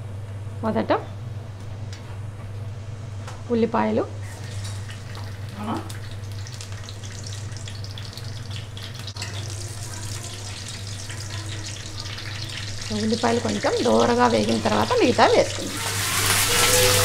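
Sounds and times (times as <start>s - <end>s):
onion sizzling in hot oil: 4.2s - 17.0s.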